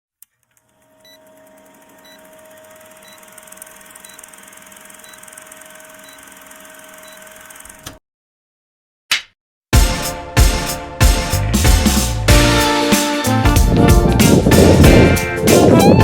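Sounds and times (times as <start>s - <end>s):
steady machine hum: 0.8s - 7.8s.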